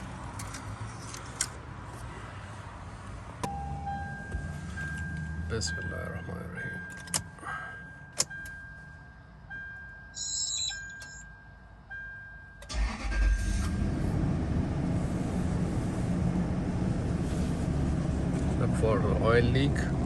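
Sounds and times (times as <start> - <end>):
engine cranking and idling: 12.6 - 14.6.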